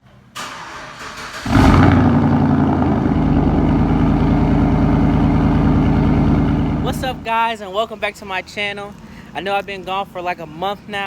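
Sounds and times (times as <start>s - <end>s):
engine cranking: 0.4s - 7.3s
engine idling: 1.3s - 7.3s.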